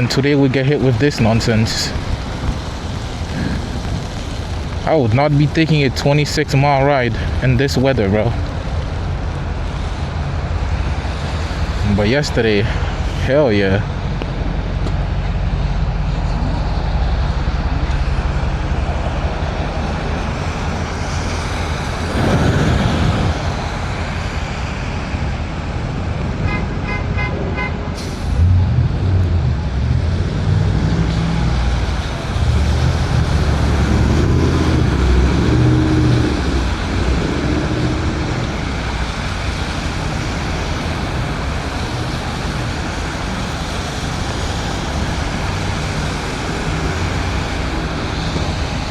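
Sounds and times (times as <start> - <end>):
road and wind noise: 0.0 - 48.9
traffic: 0.0 - 48.9
low rumbling hum: 7.1 - 48.9
whoosh: 27.9 - 39.6.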